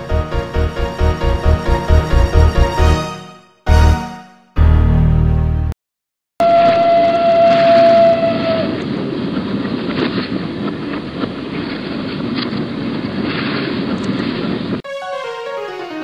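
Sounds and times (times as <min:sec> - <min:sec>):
train running rumble: 0:00.0 - 0:03.0
train whistle: 0:06.4 - 0:08.8.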